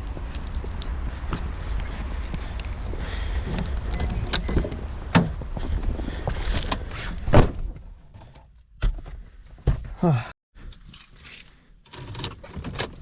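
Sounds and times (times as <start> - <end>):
car rumble: 0.0 - 8.5
keys jingling: 0.2 - 6.8.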